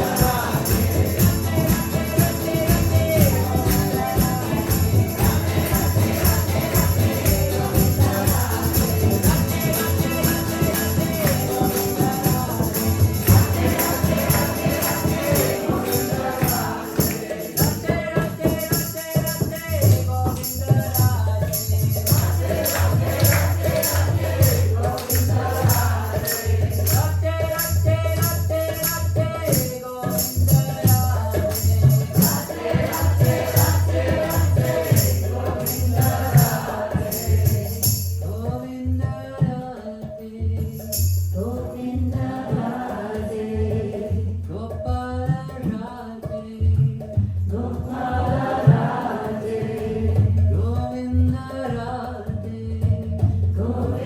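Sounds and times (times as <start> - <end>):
steady drum beat: 0.0 - 39.7, 40.6 - 51.8
group singing call-and-response: 0.0 - 44.7, 47.5 - 52.6, 53.3 - 54.0
jingling hand percussion: 0.0 - 54.0.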